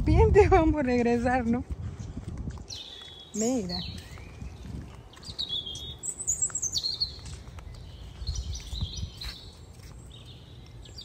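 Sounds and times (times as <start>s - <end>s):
songbird chirping and whistling: 2.7s - 11.0s.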